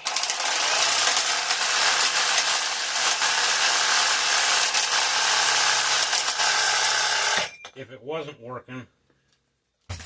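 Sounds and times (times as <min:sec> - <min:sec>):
power tool running on metal: 0:00.0 - 0:07.5.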